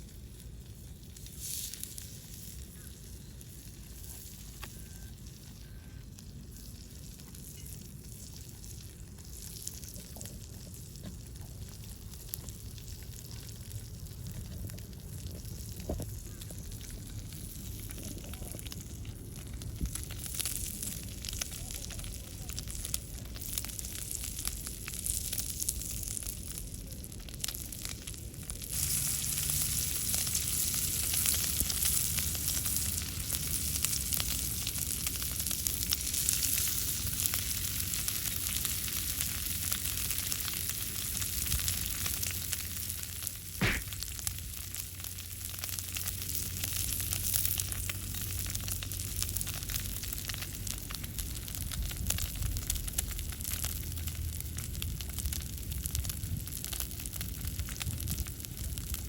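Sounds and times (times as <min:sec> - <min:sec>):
steak sizzling over fire: 0:00.0 - 0:59.0
sharp knock: 0:43.6 - 0:43.9.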